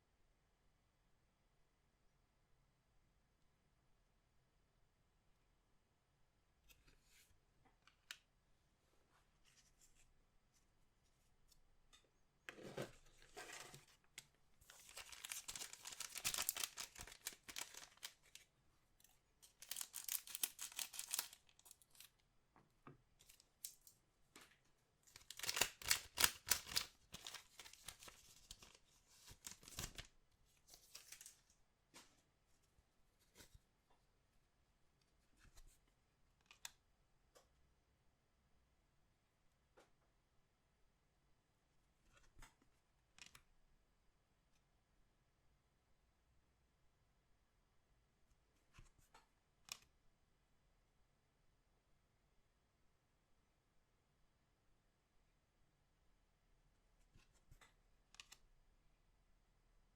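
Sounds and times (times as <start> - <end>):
wrappers tearing and crinkling: 14.7 - 18.4, 19.4 - 22.1, 25.2 - 28.7.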